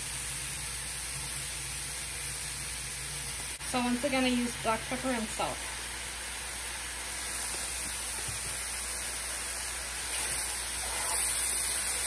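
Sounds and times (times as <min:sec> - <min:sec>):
mushrooms sizzling in a frying pan: 0:00.0 - 0:12.0.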